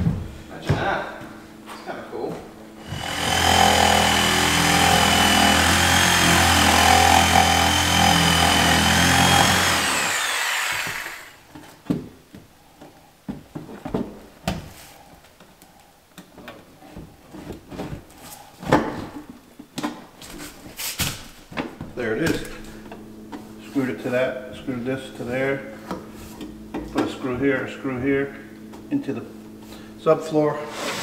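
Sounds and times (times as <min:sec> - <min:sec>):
power tool motor running: 0:02.8 - 0:11.4.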